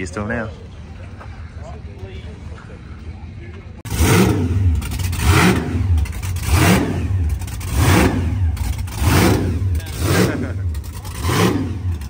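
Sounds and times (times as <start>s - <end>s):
car engine revving: 3.9s - 12.0s.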